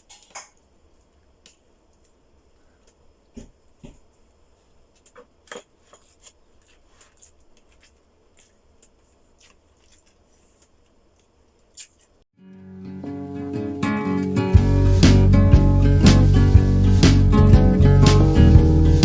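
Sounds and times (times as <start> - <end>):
soft thumps: 3.3 - 4.1
chewing food: 5.0 - 12.2.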